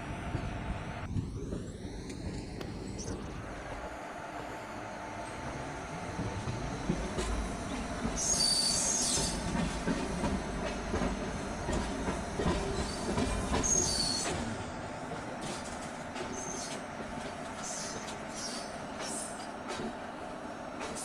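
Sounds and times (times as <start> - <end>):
train rumbling on rails: 0.0 - 21.0
train wheels squealing: 6.7 - 14.5, 16.2 - 16.8, 17.6 - 19.5.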